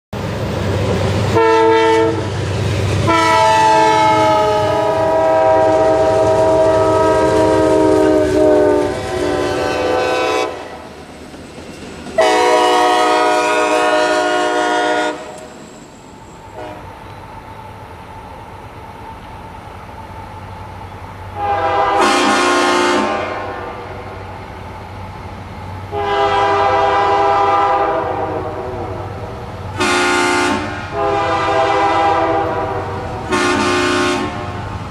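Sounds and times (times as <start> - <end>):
passing train rumble: 0.1 - 34.9
train air horn blasts: 1.3 - 2.3, 3.0 - 10.8, 12.2 - 15.4, 16.5 - 16.9, 21.3 - 24.2, 25.9 - 34.7.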